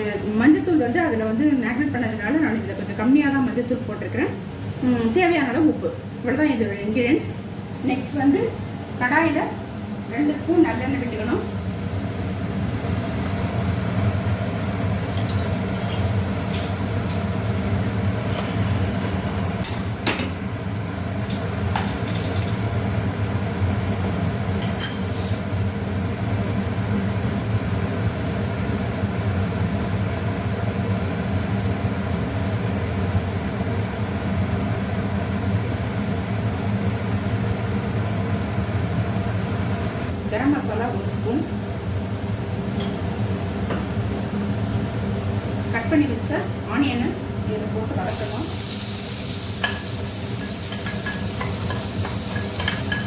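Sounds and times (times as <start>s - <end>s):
utensil clinking against pan: 49.6s - 53.0s.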